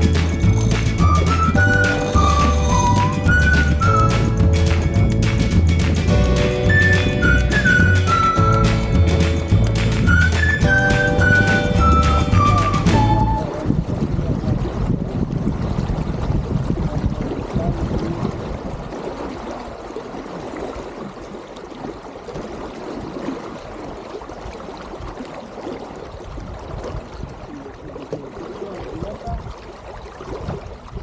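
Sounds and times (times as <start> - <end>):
wind rumble on microphone: 0.0 - 19.1, 26.1 - 31.0
water gurgling along a hull: 0.0 - 31.0.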